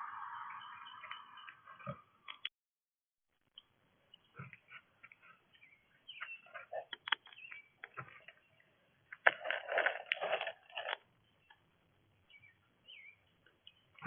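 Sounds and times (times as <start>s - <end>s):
faint bird chirps: 0.0s - 2.4s, 3.6s - 9.1s, 11.1s - 14.0s
crunching at bird feeder: 9.1s - 11.1s.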